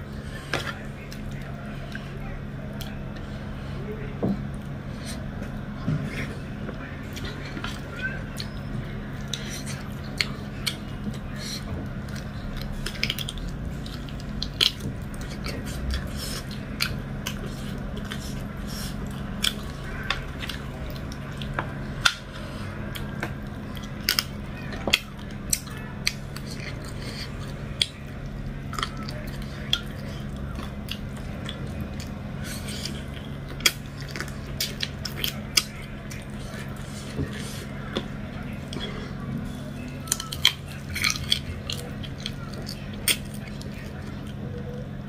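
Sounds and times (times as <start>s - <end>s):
steady low hum: 0.0s - 45.0s
person chewing and biting: 9.2s - 44.4s.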